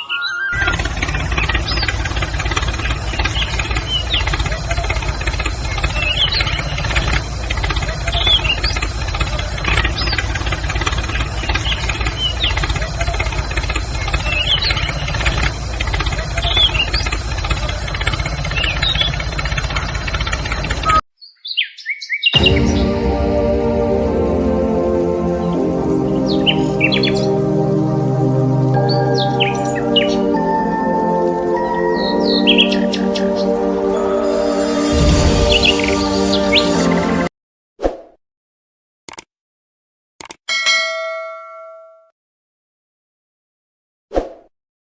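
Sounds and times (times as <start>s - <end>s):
engine idling: 0.6s - 20.9s
birds chirping: 28.8s - 36.9s.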